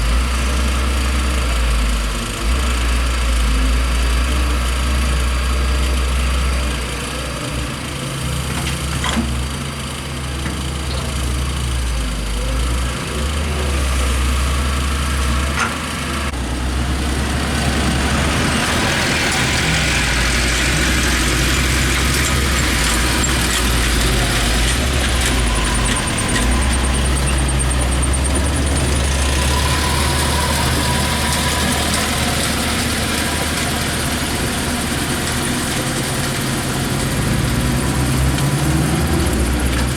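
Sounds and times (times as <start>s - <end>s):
diesel engine rumbling: 0.0s - 39.9s
high-pitched machine working noise: 18.3s - 36.6s.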